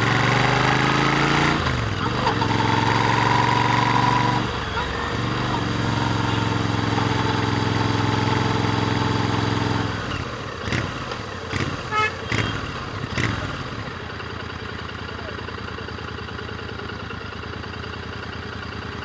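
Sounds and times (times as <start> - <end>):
motorcycle engine running: 0.0 - 19.0
horn toot: 11.9 - 12.7.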